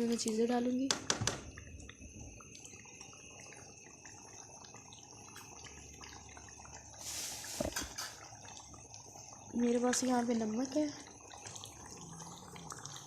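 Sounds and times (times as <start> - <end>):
pot simmering with bubbling: 0.0 - 13.0
brief hiss: 7.0 - 8.0.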